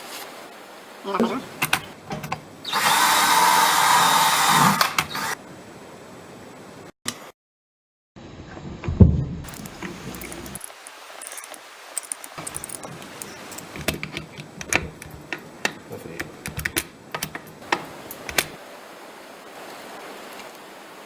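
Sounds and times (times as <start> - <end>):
steady hiss: 0.0 - 2.0, 9.5 - 16.9, 17.6 - 21.0.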